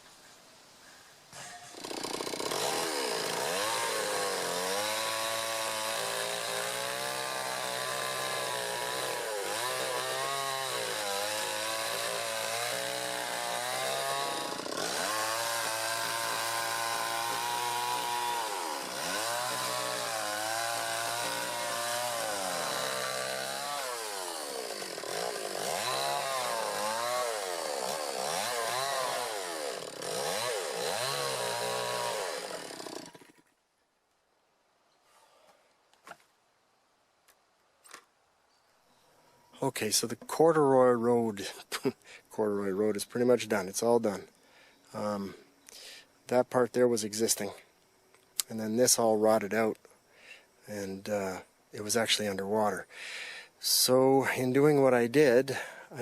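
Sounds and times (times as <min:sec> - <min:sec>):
chainsaw cutting logs: 0:01.5 - 0:33.6.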